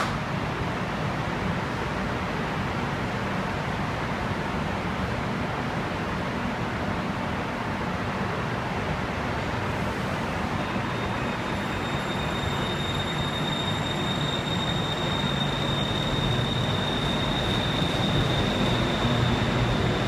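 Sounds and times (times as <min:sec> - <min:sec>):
train running on rails: 0:00.0 - 0:20.0
thin high whine: 0:10.6 - 0:20.0.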